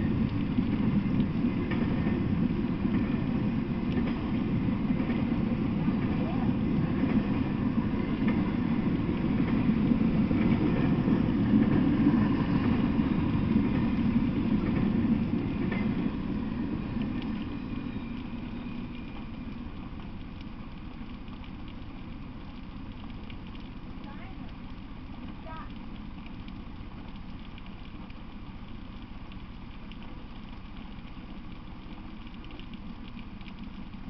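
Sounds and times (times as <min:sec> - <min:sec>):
freight train rumbling past: 0:00.0 - 0:20.1.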